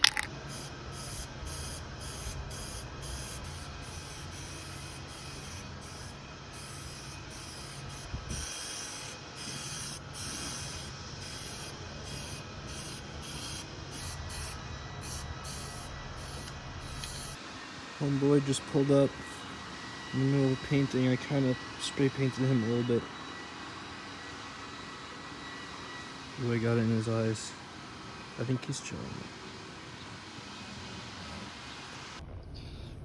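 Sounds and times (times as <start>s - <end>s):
spray paint can hissing: 0.0s - 17.4s
steady low hum: 0.0s - 25.2s, 25.9s - 33.0s.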